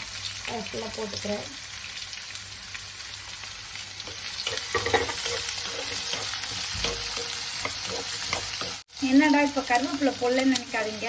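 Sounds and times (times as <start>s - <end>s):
onions sizzling in oil: 0.0s - 11.0s
spoon scraping and stirring: 4.0s - 8.8s.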